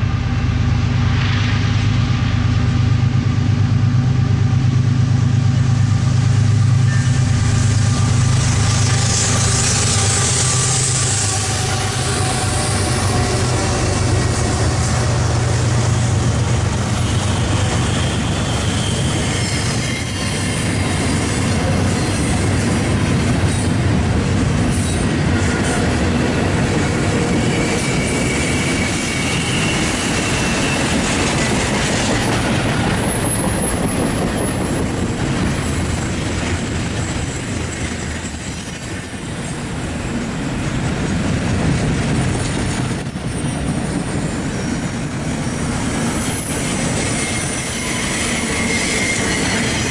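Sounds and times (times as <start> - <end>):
locomotive engine hum: 0.0 - 49.9
high wheel squeal: 6.7 - 23.8, 24.7 - 39.5, 45.9 - 49.9.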